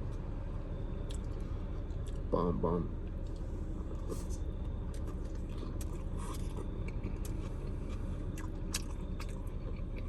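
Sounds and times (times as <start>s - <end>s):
person chewing food: 3.2s - 10.0s.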